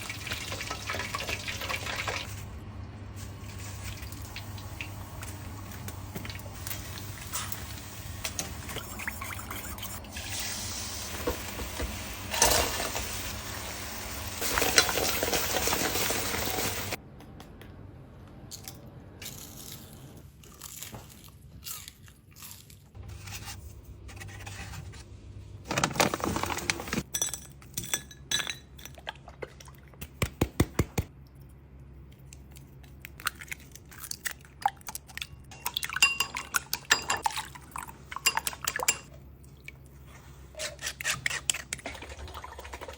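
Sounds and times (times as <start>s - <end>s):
clinks of dishes and utensils: 35.5s - 37.2s.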